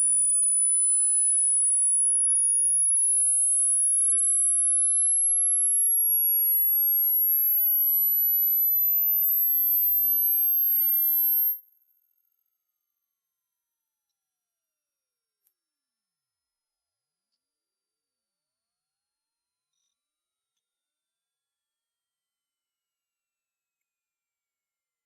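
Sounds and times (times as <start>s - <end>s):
high-pitched rising tone: 8.7s - 11.6s.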